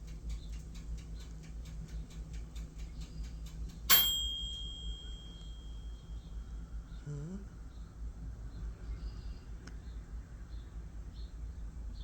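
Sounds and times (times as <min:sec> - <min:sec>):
sharp ringing clink: 0:03.9 - 0:06.3.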